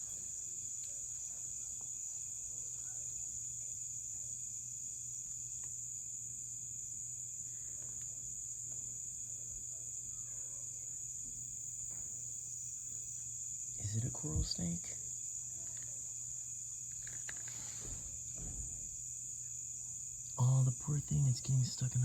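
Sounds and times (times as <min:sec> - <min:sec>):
faint low hum: 0:00.0 - 0:22.0
insect chorus trilling: 0:00.0 - 0:22.0
soft rustles: 0:17.0 - 0:18.6.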